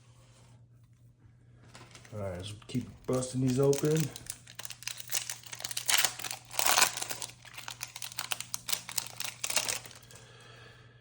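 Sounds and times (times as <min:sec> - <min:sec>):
foil wrapper crinkling and tearing: 0:01.7 - 0:10.2.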